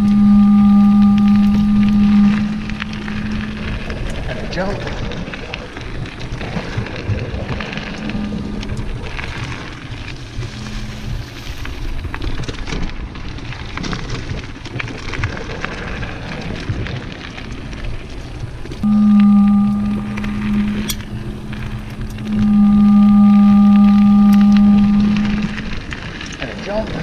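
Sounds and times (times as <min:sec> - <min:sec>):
low steady hum: 0:00.0 - 0:27.0
bike tyres crackling over dirt: 0:02.6 - 0:18.8, 0:25.2 - 0:27.0.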